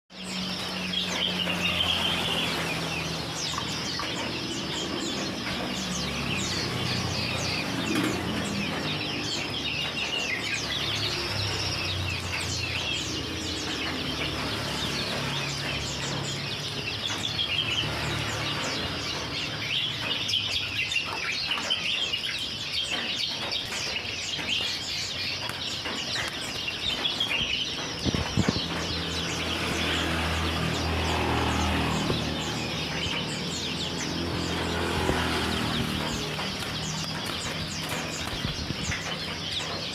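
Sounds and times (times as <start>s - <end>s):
small birds chirping: 0.1s - 39.9s
wings fluttering: 25.4s - 39.9s.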